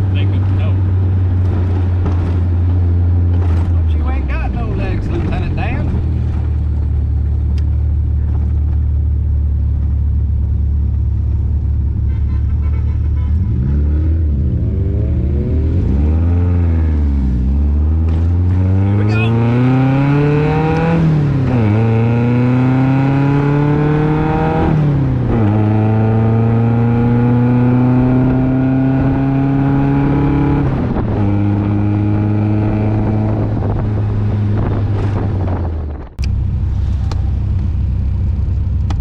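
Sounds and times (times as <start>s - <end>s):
sports car engine accelerating: 13.4s - 39.0s
lower steady engine sound: 31.7s - 39.0s.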